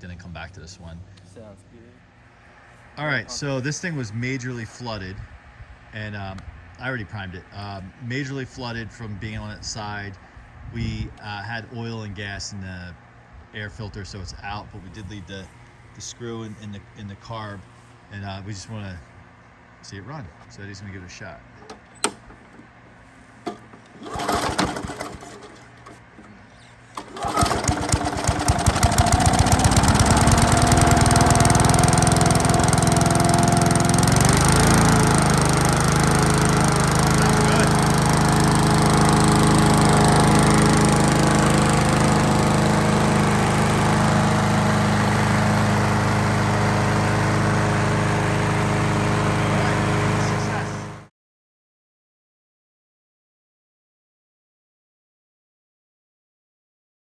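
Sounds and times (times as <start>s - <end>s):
lawn mower engine starting: 21.5s - 51.1s.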